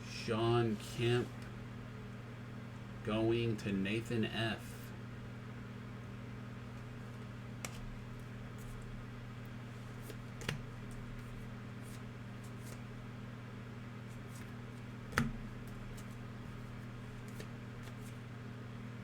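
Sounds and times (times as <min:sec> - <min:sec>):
low electrical hum: 0:00.0 - 0:19.0
faint card rustles: 0:09.8 - 0:12.9, 0:14.1 - 0:18.2.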